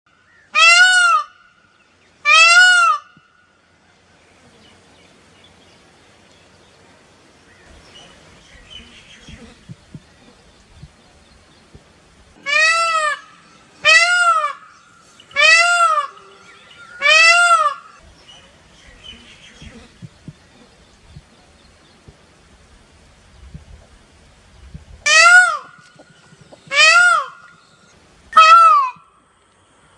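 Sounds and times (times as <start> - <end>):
peacock calling: 0.2 - 3.4, 7.5 - 11.8, 12.4 - 21.8, 24.6 - 29.2.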